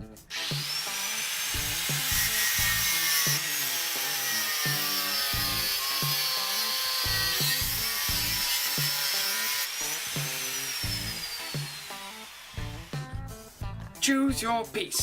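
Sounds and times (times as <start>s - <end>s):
background music with steady beat: 0.0s - 15.0s
power tool cutting steel: 0.3s - 13.2s.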